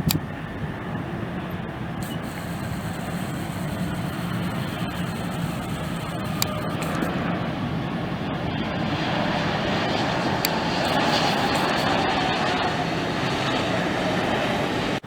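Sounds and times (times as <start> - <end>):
jet engines rushing with whine: 0.0 - 15.0
brief clicks: 2.0 - 7.1, 10.4 - 12.0.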